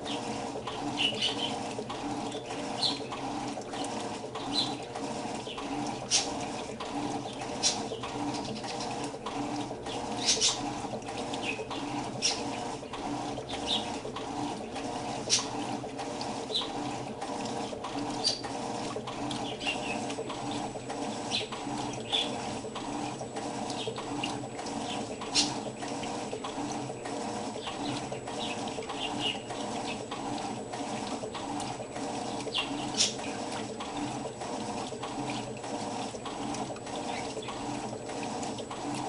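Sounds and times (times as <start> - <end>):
washing machine running: 0.0 - 39.0
water sloshing: 0.0 - 39.0.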